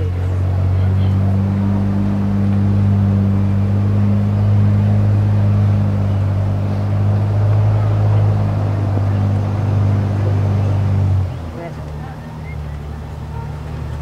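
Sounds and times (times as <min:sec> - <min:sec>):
tram engine droning under load: 0:00.0 - 0:14.0.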